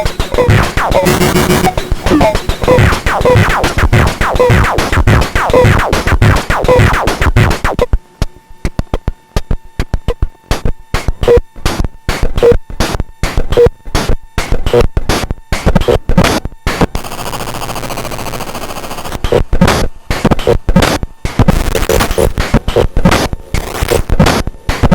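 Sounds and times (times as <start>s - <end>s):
glitchy drum machine pattern: 0.0s - 8.0s, 8.6s - 24.9s.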